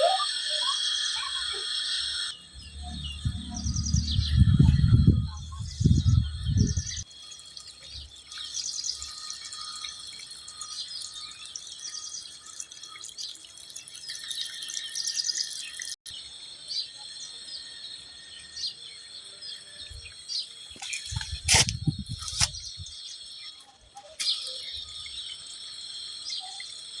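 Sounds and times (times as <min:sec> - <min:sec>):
high-pitched insect drone: 0:00.0 - 0:13.0, 0:14.3 - 0:27.0
birds chirping and singing: 0:02.4 - 0:07.0
low rumble: 0:02.5 - 0:07.0.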